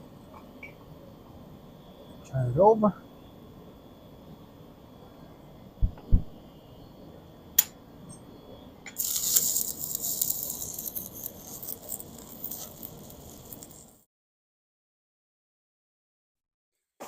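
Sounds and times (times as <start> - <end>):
welding arc crackling: 9.0 - 14.0.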